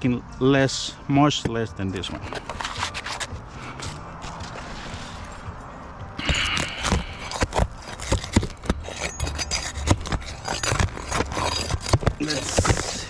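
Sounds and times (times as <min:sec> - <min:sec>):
roof shingles scraping and knocking: 0:06.7 - 0:13.0.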